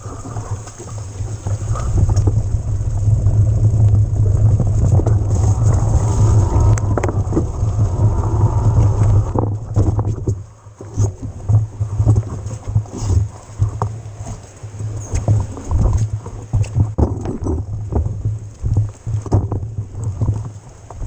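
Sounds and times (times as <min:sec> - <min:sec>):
tyre and trail noise: 0:00.0 - 0:21.0
wind rumbling on microphone: 0:00.0 - 0:21.0
bike knocks and rattles: 0:15.0 - 0:21.0.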